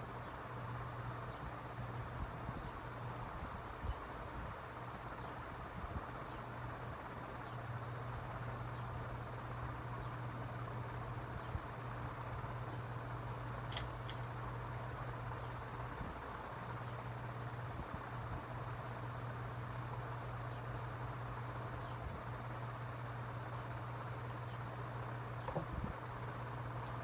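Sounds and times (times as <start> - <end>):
ceiling fans running: 0.0 - 27.0.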